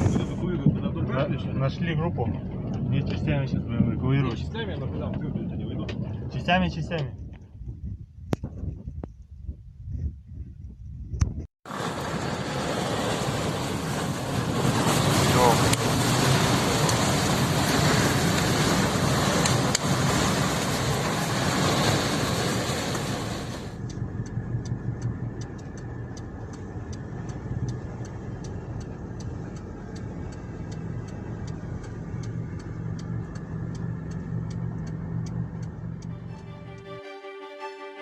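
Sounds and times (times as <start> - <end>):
rushing wind noise: 0.0 - 23.7
vehicle engine running: 11.7 - 36.8
rapid regular ticking: 23.8 - 36.4.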